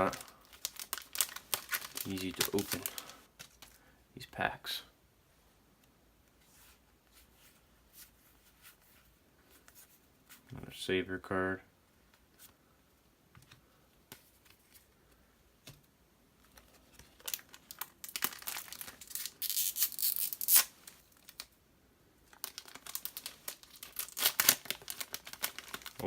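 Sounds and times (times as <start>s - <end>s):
cards being handled: 0.0s - 3.8s
wrapper tearing and crinkling: 0.0s - 3.8s, 17.1s - 21.5s, 22.3s - 26.0s.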